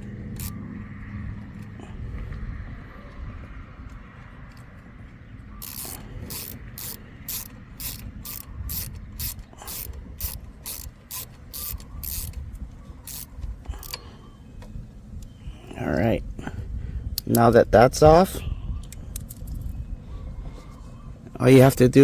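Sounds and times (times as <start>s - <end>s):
socket ratchet clicking: 0.0s - 0.6s, 5.6s - 14.1s.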